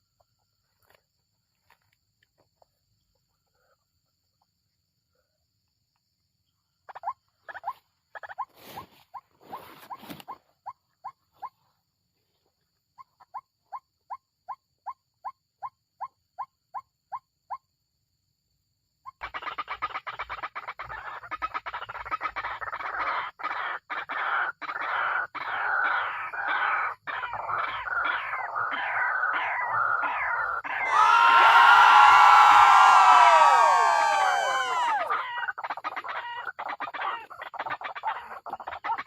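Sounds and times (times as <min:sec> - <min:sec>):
waterhen calling: 0:30.7 - 0:39.0.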